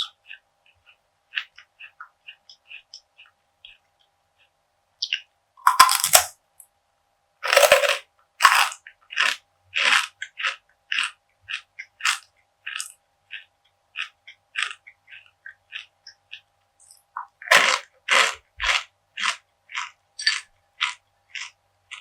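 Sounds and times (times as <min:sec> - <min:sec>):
crunchy brittle being chewed: 0:05.0 - 0:06.3, 0:07.4 - 0:22.0.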